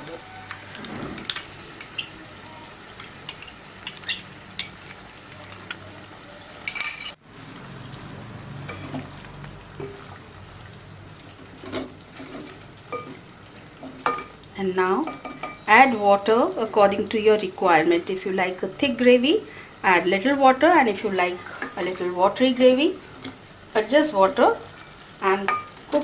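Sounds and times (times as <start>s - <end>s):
sauce sizzling in a pan: 0.1s - 6.7s, 9.0s - 26.0s
spoon scraping a pan: 0.2s - 5.9s, 6.7s - 7.2s.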